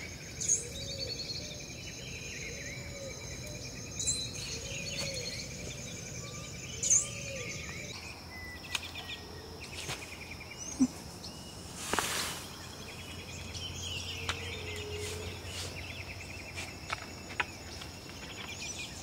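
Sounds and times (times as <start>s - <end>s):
birds chirping and trilling: 0.0s - 19.0s
outdoor background noise: 0.0s - 19.0s.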